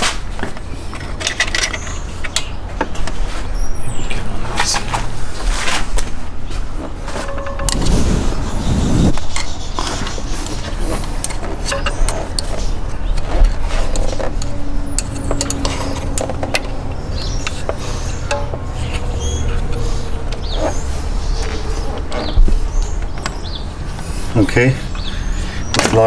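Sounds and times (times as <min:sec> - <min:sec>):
hand tools clicking and knocking: 0:00.0 - 0:03.2, 0:09.3 - 0:20.8
low rumble: 0:07.3 - 0:10.2.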